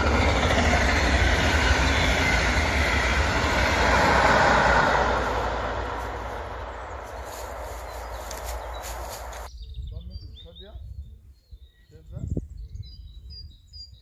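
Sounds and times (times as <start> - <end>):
train rolling rumble and rail noise: 0.0 - 9.5.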